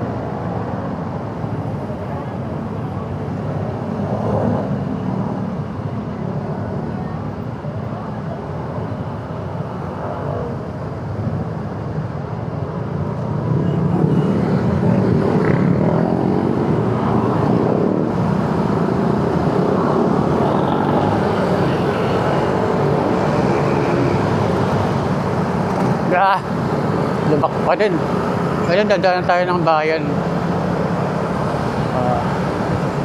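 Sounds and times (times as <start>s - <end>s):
motorcycle engine and road noise: 0.0s - 33.0s.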